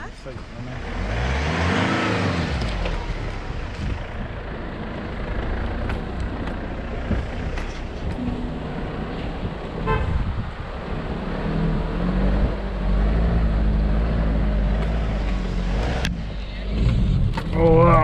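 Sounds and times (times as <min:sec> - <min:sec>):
vehicle engine under load: 0:00.0 - 0:18.0.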